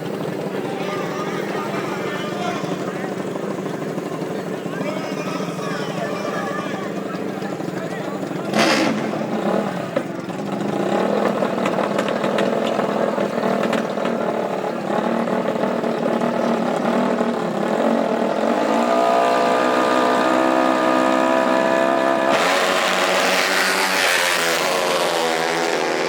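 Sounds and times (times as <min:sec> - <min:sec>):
broad rush of noise: 0:00.0 - 0:26.0
small racing engine revving: 0:00.0 - 0:26.0.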